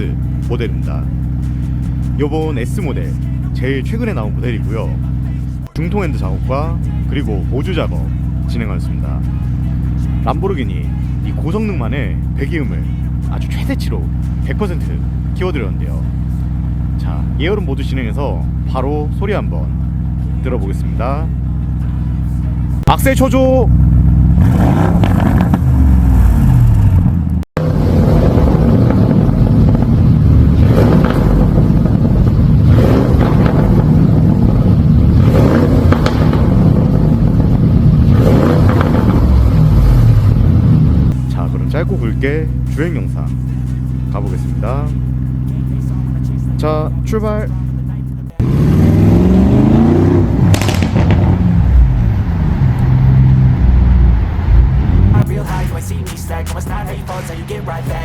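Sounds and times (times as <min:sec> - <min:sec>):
car engine revving: 0:00.0 - 0:58.0
exhaust pops: 0:22.8 - 0:41.9, 0:48.4 - 0:55.3.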